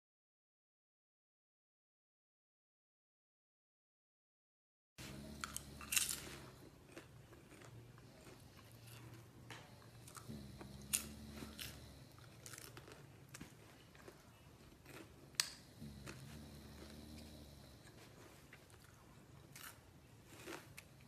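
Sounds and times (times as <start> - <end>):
faint low hum: 5.0 - 21.0
popcorn being chewed: 5.0 - 21.0.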